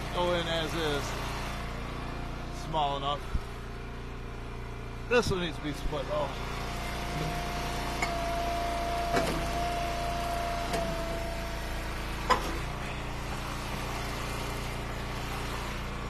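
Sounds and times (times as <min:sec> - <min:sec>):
hydraulic wood splitter whine: 0:00.0 - 0:16.0.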